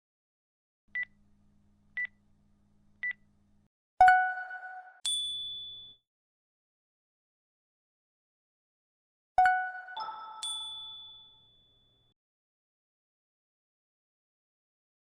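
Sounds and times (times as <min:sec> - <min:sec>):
ringing chime: 0:05.0 - 0:06.0, 0:09.9 - 0:12.1
higher ding: 0:10.0 - 0:12.0.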